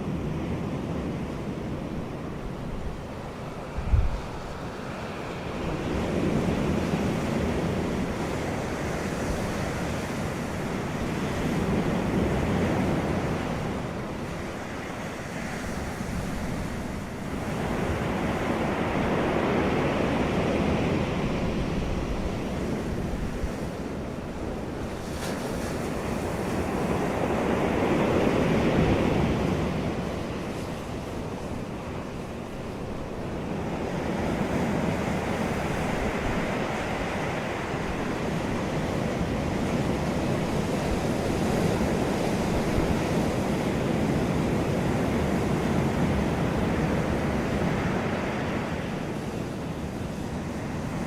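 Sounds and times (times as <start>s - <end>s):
wind on microphone: 0.0s - 51.0s.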